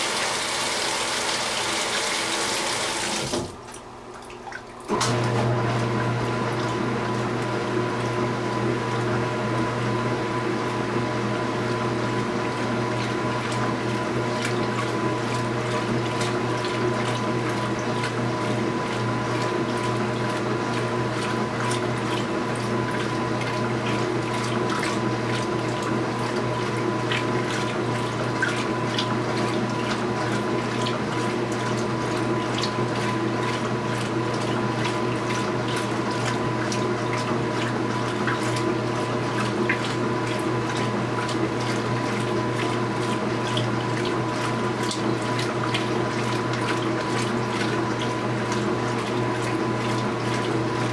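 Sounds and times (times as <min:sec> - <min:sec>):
water pouring into washing machine: 0:00.0 - 0:50.9
small splashes and ticks: 0:03.6 - 0:04.9, 0:14.3 - 0:50.9.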